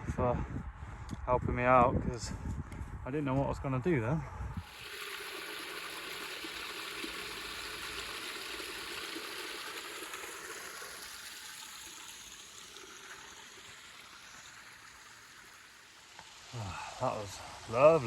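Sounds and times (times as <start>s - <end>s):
mountain stream running: 4.6s - 18.0s.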